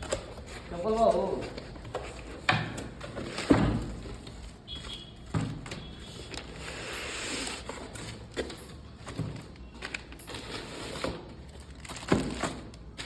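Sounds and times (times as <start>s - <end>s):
knocks and thumps on cardboard box: 0.0s - 5.9s
packaging rustling: 0.0s - 13.0s.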